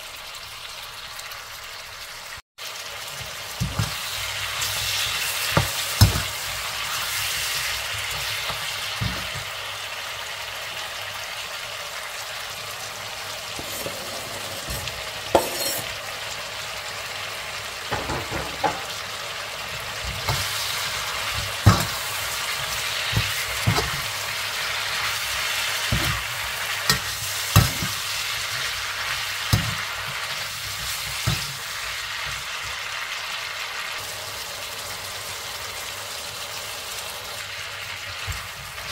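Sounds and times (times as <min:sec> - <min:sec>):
meat sizzling in oil: 0:00.0 - 0:38.9
metal spatula scraping a pan: 0:13.6 - 0:16.0.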